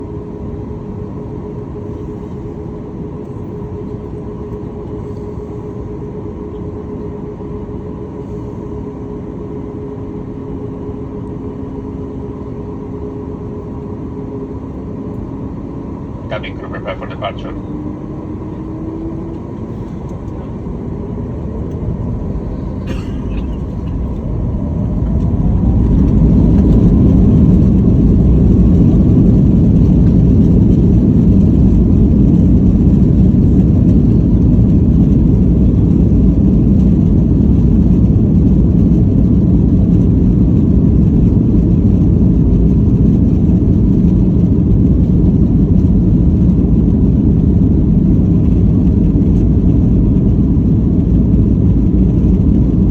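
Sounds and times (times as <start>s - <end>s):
jet engines roaring: 13.3s - 52.9s.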